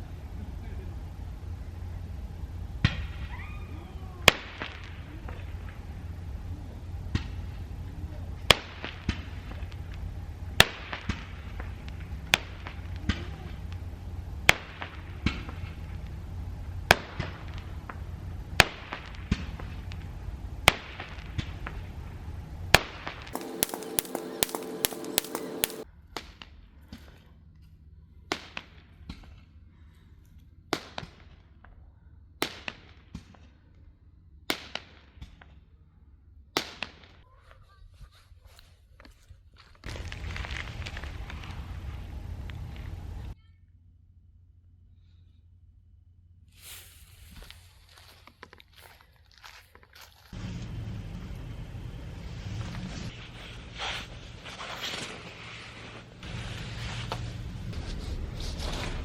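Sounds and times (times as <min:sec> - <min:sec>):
sharp pops or cracks: 0:23.3 - 0:25.8
rapid clicks: 0:23.4 - 0:25.8.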